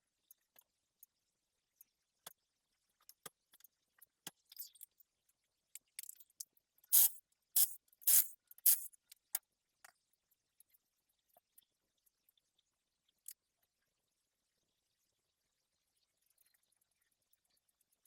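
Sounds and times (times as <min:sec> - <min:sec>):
tool clicks and clinks: 0:07.0 - 0:08.9.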